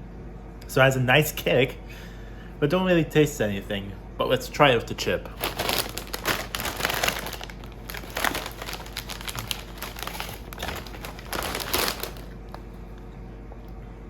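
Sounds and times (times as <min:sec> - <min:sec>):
crisp packet rustling: 0:05.4 - 0:12.6.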